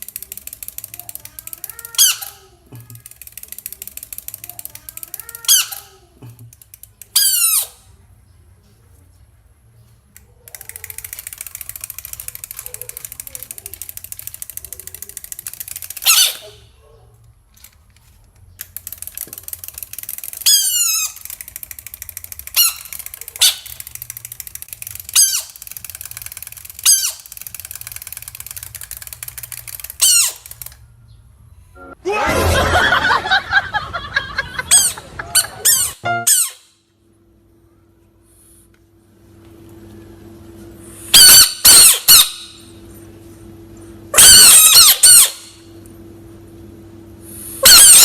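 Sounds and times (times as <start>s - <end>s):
high-pitched animal squeaks: 1.6s - 2.6s, 5.1s - 6.1s, 7.2s - 7.9s, 16.0s - 16.6s, 20.4s - 21.3s, 25.1s - 25.6s, 26.8s - 27.3s, 30.0s - 30.5s, 34.7s - 36.7s, 41.1s - 42.6s, 44.2s - 45.6s, 47.6s - 48.0s
harsh animal squealing call: 44.2s - 45.6s, 47.6s - 48.0s.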